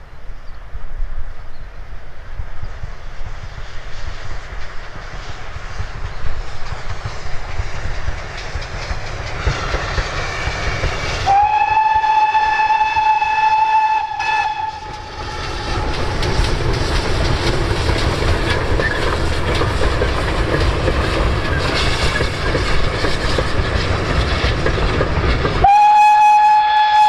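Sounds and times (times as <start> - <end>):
train rumbling: 0.0 - 27.0
wheels clicking over rail joints: 5.9 - 11.3, 14.8 - 26.1
steam whistle blowing: 11.2 - 15.1, 25.6 - 27.0.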